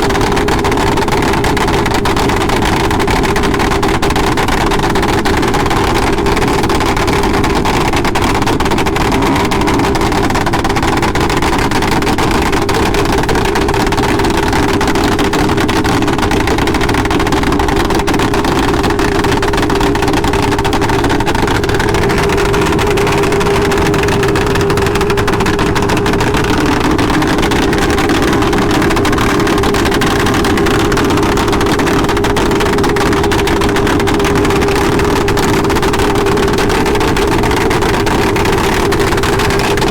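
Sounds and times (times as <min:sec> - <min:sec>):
motorcycle engine running: 0:00.0 - 0:39.9
rushing noise: 0:19.1 - 0:35.3.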